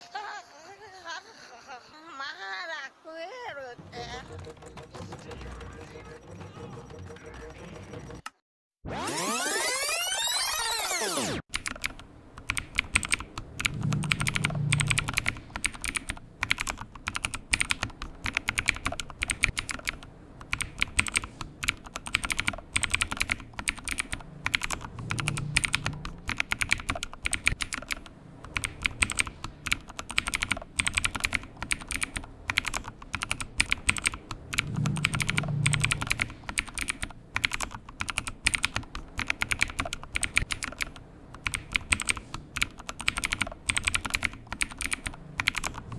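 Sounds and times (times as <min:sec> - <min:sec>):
low hum: 0:11.3 - 0:39.2
typing on computer keyboard: 0:11.5 - 0:45.9.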